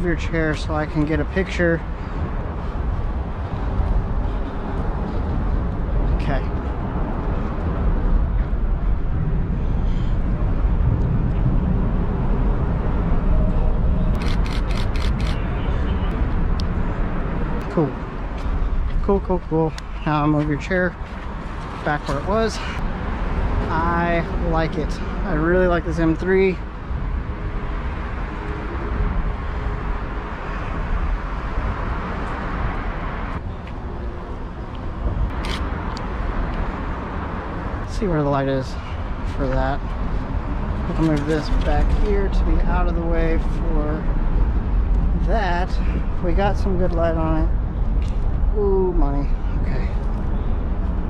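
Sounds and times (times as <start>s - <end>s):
low outdoor rumble: 0.0s - 51.0s
camera shutter clicks: 14.1s - 15.4s, 35.4s - 35.6s.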